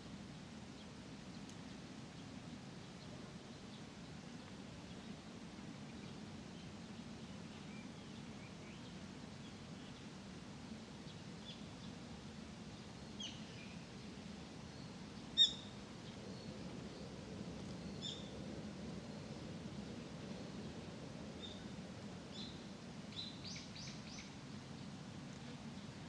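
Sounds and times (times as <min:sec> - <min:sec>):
small birds chirping: 0:14.7 - 0:18.3.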